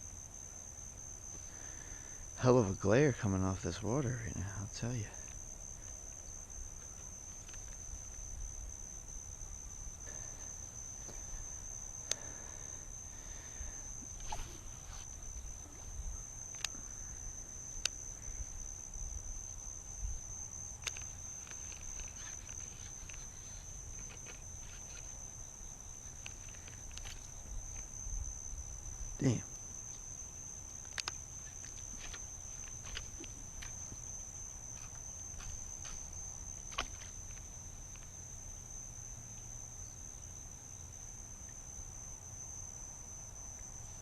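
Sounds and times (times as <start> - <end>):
crickets chirping: 0.0 - 44.0
sharp clicks: 30.8 - 31.2.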